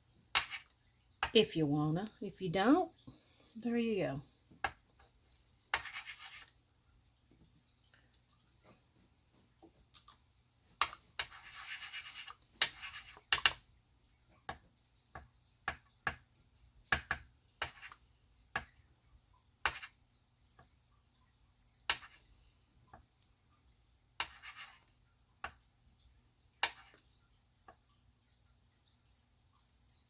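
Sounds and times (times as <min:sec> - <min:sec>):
marker scratching on photo paper: 0:00.3 - 0:00.7, 0:05.7 - 0:06.5, 0:11.2 - 0:13.5, 0:17.6 - 0:18.0, 0:19.6 - 0:20.0, 0:21.9 - 0:22.3, 0:24.2 - 0:24.9, 0:26.6 - 0:27.0.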